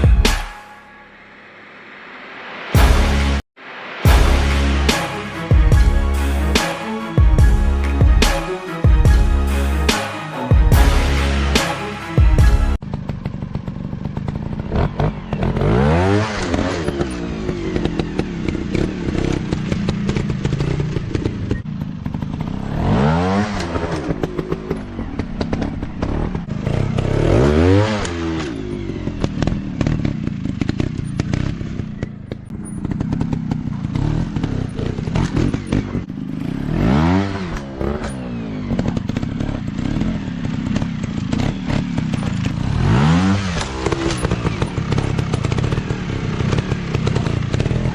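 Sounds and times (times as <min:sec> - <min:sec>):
dirt bike engines revving: 0:12.9 - 0:47.9.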